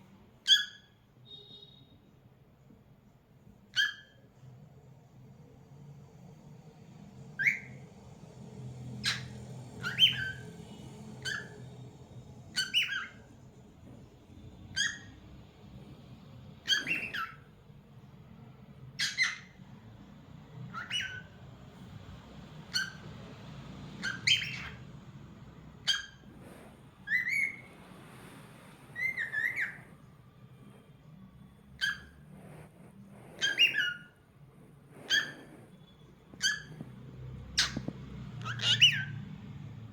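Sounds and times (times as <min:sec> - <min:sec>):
cockatiel chirping and whistling: 0:00.4 - 0:01.9, 0:03.7 - 0:04.3, 0:07.4 - 0:07.9, 0:09.0 - 0:11.8, 0:12.4 - 0:13.3, 0:14.7 - 0:15.2, 0:16.6 - 0:17.5, 0:18.9 - 0:19.6, 0:20.7 - 0:21.5, 0:22.6 - 0:23.2, 0:23.9 - 0:24.9, 0:25.8 - 0:27.7, 0:28.8 - 0:30.1, 0:31.8 - 0:34.2, 0:35.0 - 0:39.2.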